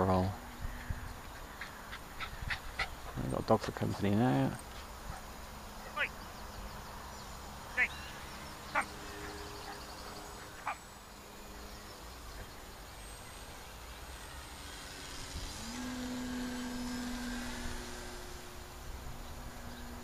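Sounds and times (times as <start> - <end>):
model plane motor humming: 4.6 - 20.0.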